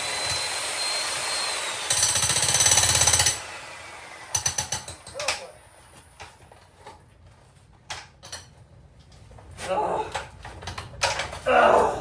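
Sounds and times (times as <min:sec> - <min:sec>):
demolition hammer breaking concrete: 0:01.9 - 0:03.4.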